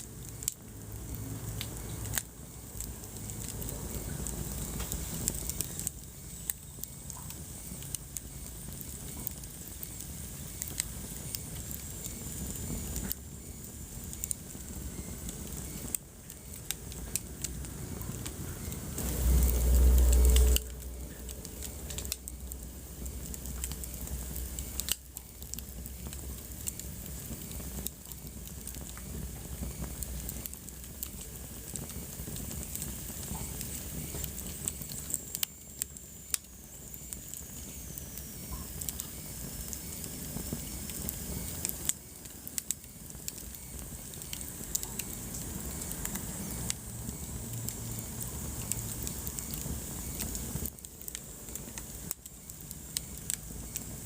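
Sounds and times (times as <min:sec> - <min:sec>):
wood fire crackling: 0:00.0 - 0:54.0
loud low rumble: 0:17.6 - 0:24.1.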